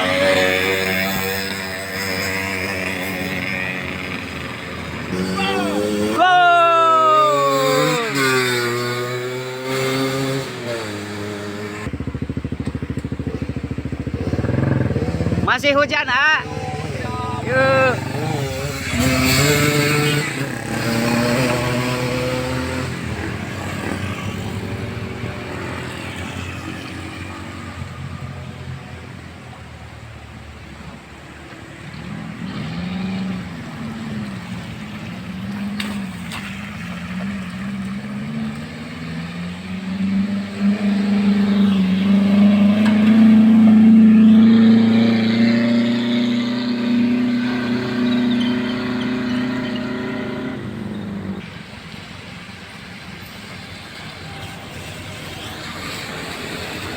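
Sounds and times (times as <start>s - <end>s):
vehicle engines labouring uphill: 0.0s - 56.9s.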